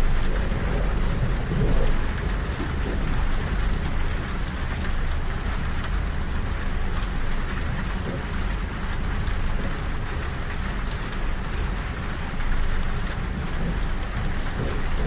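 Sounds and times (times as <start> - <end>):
rain on a window: 0.0 - 15.0
train rumbling: 0.0 - 15.0.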